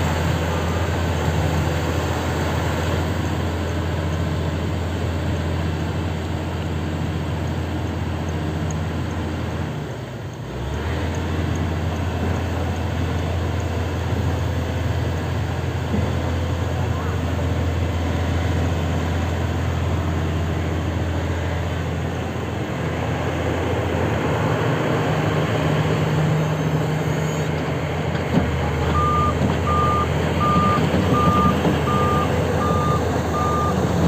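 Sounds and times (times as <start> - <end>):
excavator diesel engine running: 0.0 - 34.0
motion alarm beeping: 28.9 - 33.8.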